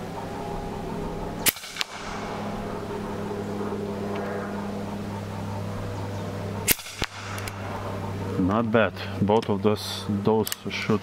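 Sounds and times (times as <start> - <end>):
steady low hum: 0.0 - 11.0
quieter snap: 1.4 - 2.8, 6.6 - 7.9
air rifle shot crack: 1.4 - 4.5, 6.6 - 8.2.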